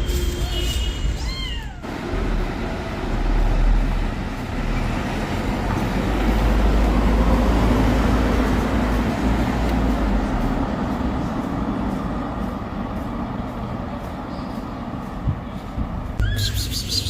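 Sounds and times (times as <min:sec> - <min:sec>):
cat meowing: 0:01.1 - 0:01.9.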